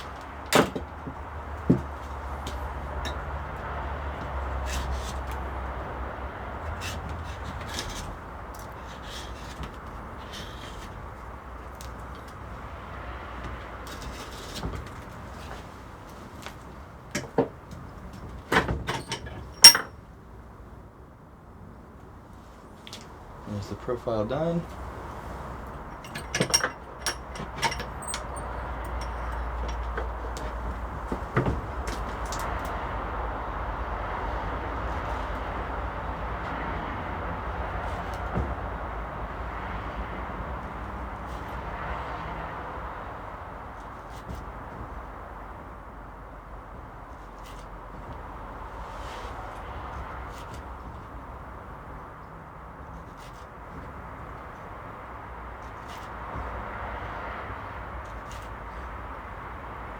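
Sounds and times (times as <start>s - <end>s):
sharp handling clicks and knocks: 0.0s - 5.5s, 13.4s - 20.0s, 24.6s - 32.8s.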